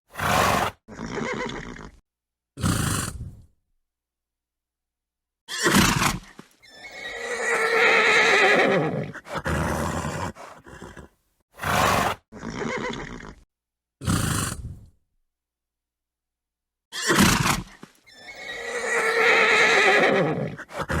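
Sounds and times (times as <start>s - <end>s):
horse whinnying: 0.1s - 2.0s, 5.5s - 13.4s, 16.9s - 21.0s
horse breath bursts: 2.6s - 3.5s, 9.2s - 11.1s, 14.0s - 15.0s.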